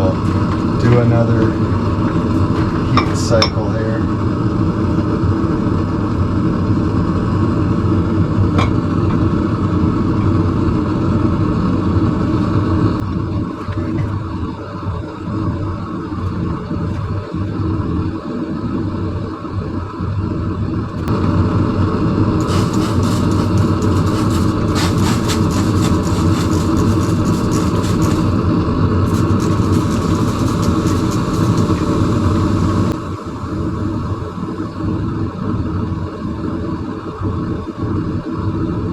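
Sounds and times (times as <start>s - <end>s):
forge running: 0.0s - 5.5s, 8.3s - 9.8s, 21.0s - 35.3s.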